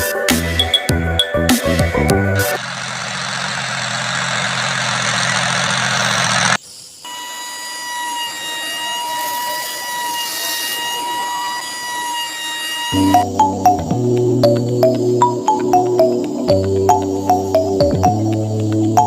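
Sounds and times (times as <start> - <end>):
steady high-pitched whine: 2.4 - 19.0
motor humming: 2.5 - 15.2.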